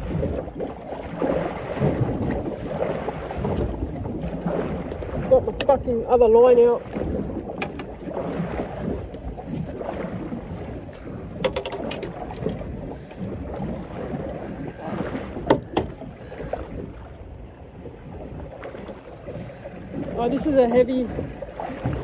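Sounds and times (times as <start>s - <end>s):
water around boat: 0.0s - 22.0s
wind: 0.0s - 22.0s
fishing gear knocks and clicks: 5.6s - 6.3s, 7.4s - 8.4s, 11.3s - 12.7s, 15.4s - 17.8s, 18.5s - 19.3s.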